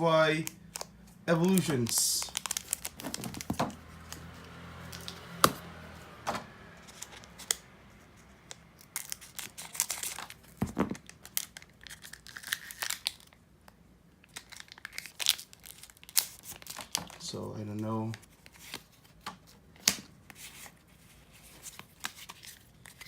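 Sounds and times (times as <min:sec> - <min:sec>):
foil wrapper tearing and crinkling: 0:00.8 - 0:04.3, 0:08.8 - 0:13.4, 0:14.2 - 0:17.3, 0:21.4 - 0:23.0.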